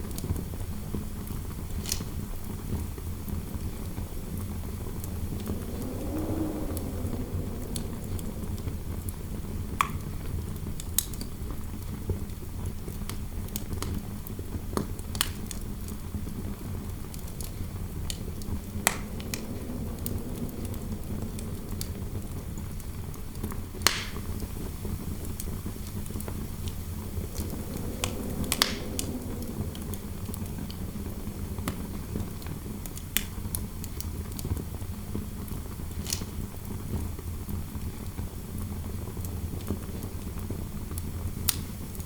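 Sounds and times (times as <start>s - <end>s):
low wind noise: 0.0s - 36.9s
fireplace fire crackling: 3.1s - 11.2s, 14.9s - 34.4s.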